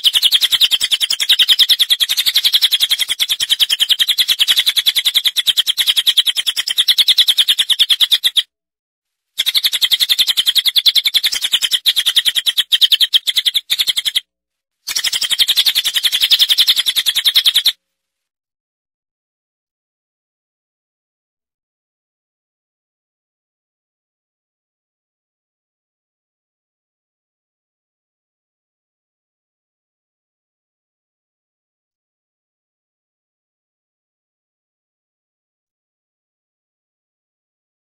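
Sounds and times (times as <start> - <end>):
songbird chirping: 0.0 - 8.5, 9.4 - 14.2, 14.9 - 17.8.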